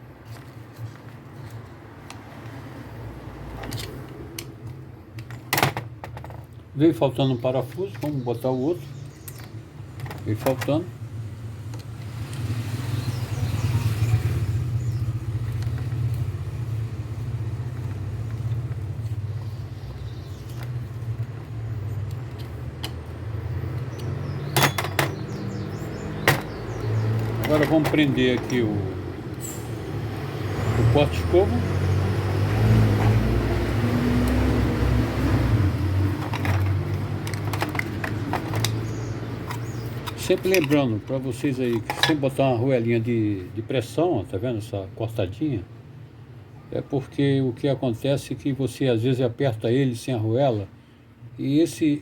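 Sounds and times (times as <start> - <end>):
small metal clicks and knocks: 3.5 - 6.7, 9.0 - 10.8, 20.4 - 25.3, 26.2 - 28.7, 36.2 - 42.3.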